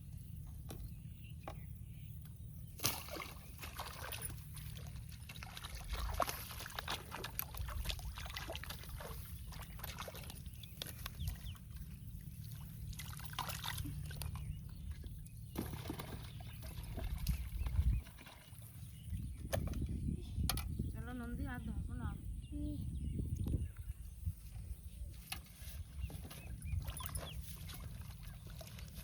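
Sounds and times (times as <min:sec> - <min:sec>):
water sloshing and splashing: 0:02.7 - 0:20.0, 0:25.1 - 0:29.0.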